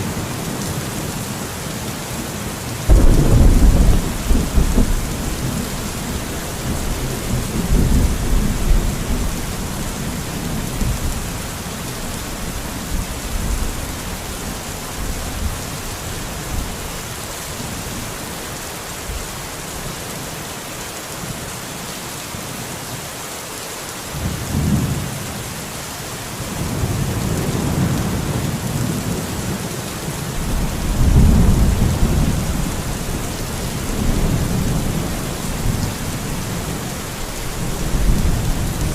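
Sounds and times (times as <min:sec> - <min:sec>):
rain hissing: 0:00.0 - 0:20.0, 0:26.4 - 0:38.9
rolling thunder: 0:02.9 - 0:11.4, 0:30.4 - 0:38.9.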